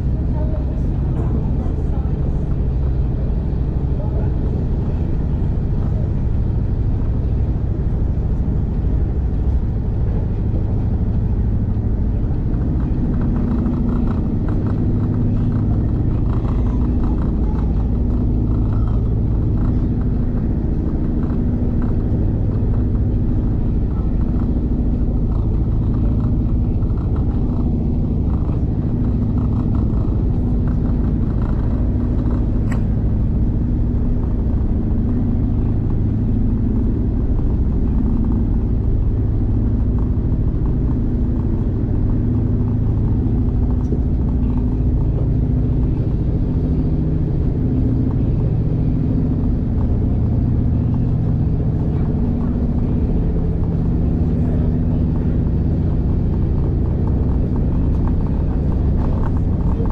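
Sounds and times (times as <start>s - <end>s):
diesel train rumbling on track: 0.0s - 59.9s.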